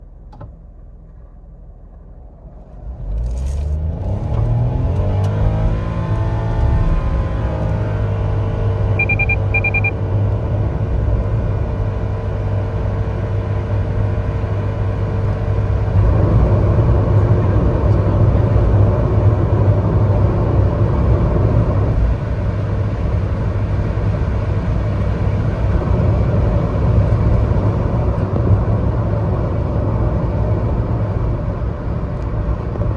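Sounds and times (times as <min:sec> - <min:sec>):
road noise: 0:00.1 - 0:32.9
car engine accelerating: 0:02.1 - 0:32.9
short electronic beeps: 0:08.9 - 0:10.0.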